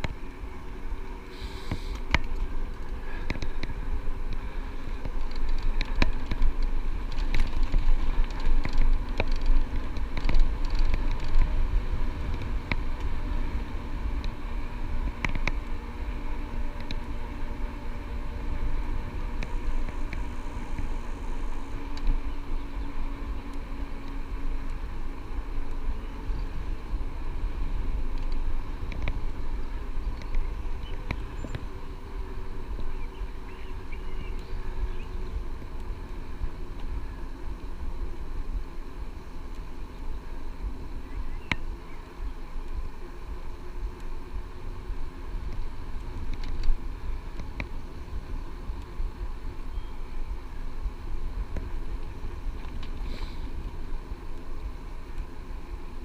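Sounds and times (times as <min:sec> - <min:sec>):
bike road noise: 0:00.0 - 0:56.0
wind rumbling on microphone: 0:00.0 - 0:56.0
faint clicks: 0:01.6 - 0:11.5, 0:28.1 - 0:31.8, 0:39.4 - 0:50.4, 0:51.0 - 0:56.0.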